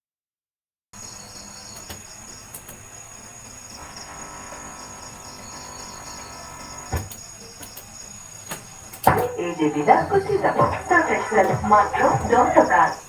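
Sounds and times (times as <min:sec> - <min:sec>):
crickets chirping: 0:01.0 - 0:13.0
room noise: 0:01.5 - 0:13.0.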